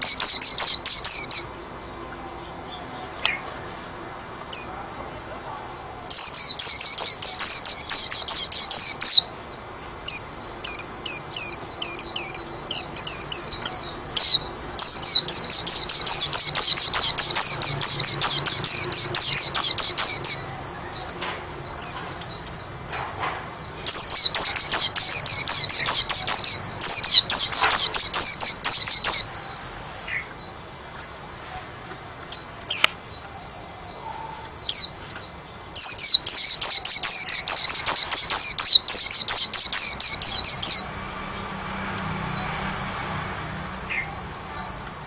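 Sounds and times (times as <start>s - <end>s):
bird singing sharp notes: 0.0s - 3.8s, 6.1s - 31.4s, 32.2s - 40.9s
bird twittering softly: 6.1s - 31.4s, 32.2s - 40.8s.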